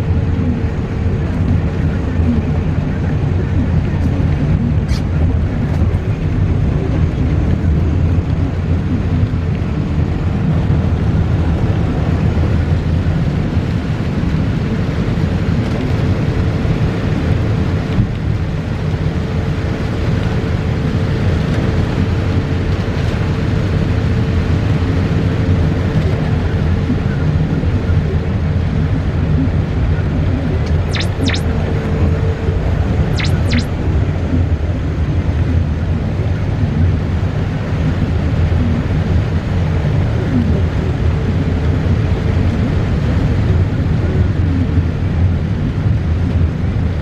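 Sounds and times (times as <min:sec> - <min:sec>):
heavy rain on car: 0:00.0 - 0:30.6, 0:33.9 - 0:47.0
road and engine rumble: 0:00.0 - 0:47.0.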